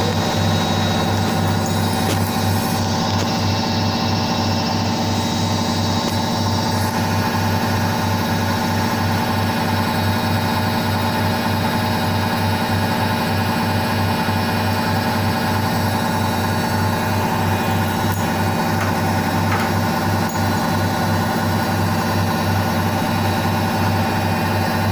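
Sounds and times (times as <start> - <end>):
low pulsing hum: 0.0 - 7.1
washing machine motor whining: 0.0 - 24.9.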